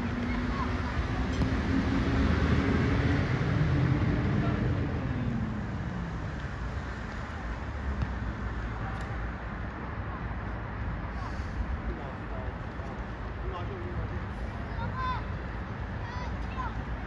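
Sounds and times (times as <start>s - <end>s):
outdoor noise haze: 0.0s - 17.0s
vehicle driving past: 0.6s - 6.3s.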